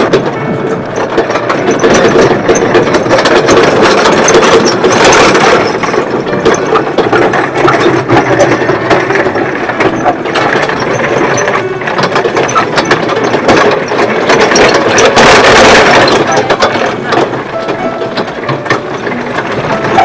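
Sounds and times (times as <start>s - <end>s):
metal cars rattling: 0.0s - 20.0s.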